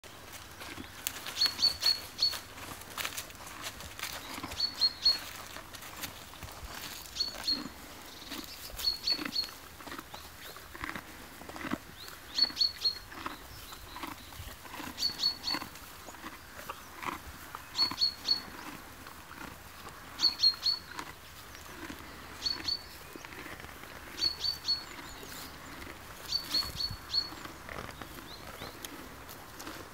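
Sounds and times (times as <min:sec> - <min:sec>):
pony chewing hay: 0:00.1 - 0:29.9
small bird high call: 0:01.4 - 0:02.4, 0:20.2 - 0:20.9, 0:26.3 - 0:27.4.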